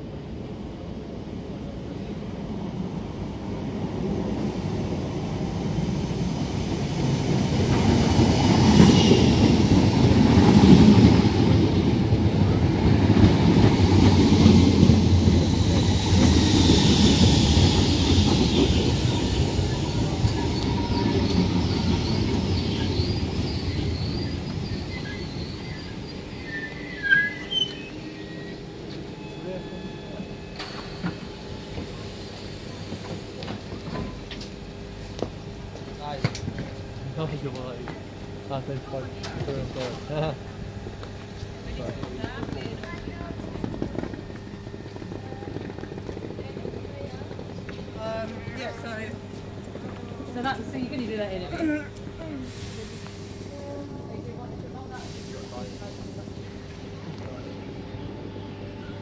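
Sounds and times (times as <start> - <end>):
train wheels rumbling on rail: 0.0 - 59.0
wheel and brake squeal: 16.2 - 30.2.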